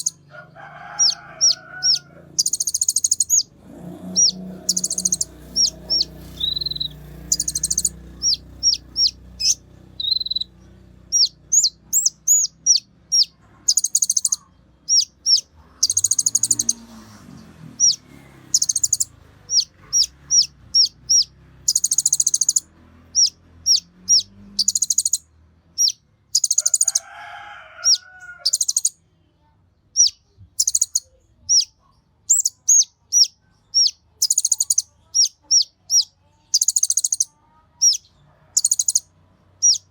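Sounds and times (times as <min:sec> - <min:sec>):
bird chirping and trilling: 0:00.0 - 0:00.2, 0:00.9 - 0:25.2, 0:25.8 - 0:27.0, 0:27.8 - 0:29.0, 0:30.0 - 0:39.9
lower bird call: 0:00.9 - 0:25.2.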